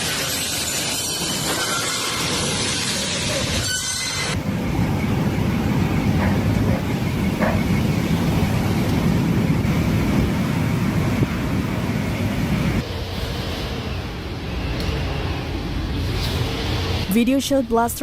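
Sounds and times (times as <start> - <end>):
storm wind buffeting microphone: 4.4 - 12.8.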